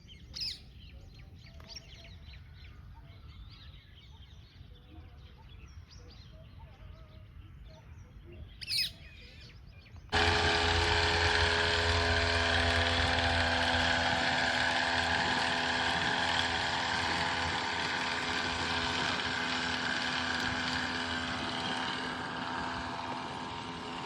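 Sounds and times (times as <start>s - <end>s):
small birds chirping: 0.0s - 10.1s
loud steady droning: 10.1s - 24.0s.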